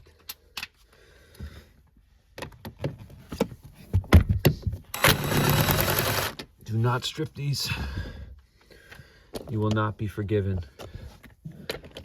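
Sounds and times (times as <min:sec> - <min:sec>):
impact wrench running: 0:04.9 - 0:06.4.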